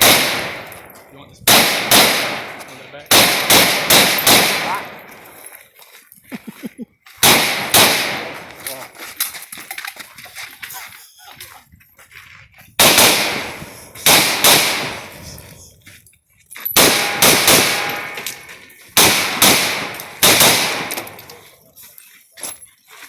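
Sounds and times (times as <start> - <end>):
rifle shots echoing: 0.0 - 5.3, 7.2 - 8.6, 12.8 - 15.2, 16.8 - 21.4.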